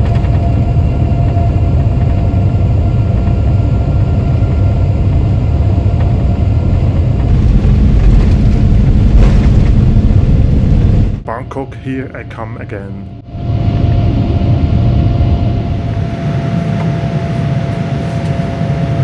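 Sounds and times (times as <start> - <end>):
wheels rumbling on runway: 0.0 - 11.3
jet engines at takeoff thrust: 0.0 - 19.0.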